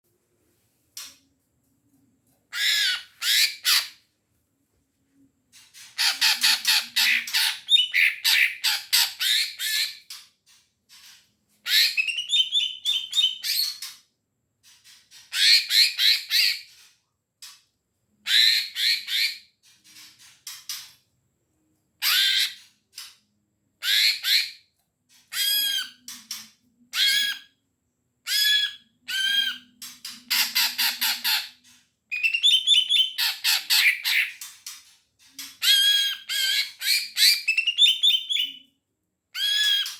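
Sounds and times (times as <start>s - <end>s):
bird chattering song: 32.1s - 34.4s.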